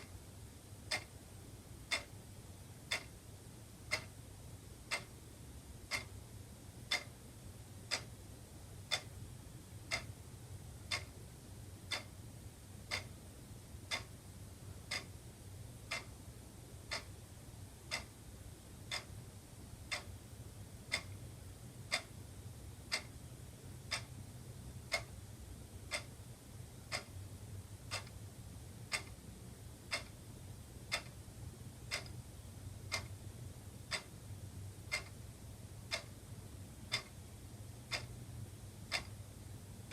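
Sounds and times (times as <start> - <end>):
wall clock ticking: 0.0 - 0.2, 0.8 - 39.9
faint low hum: 0.0 - 39.9.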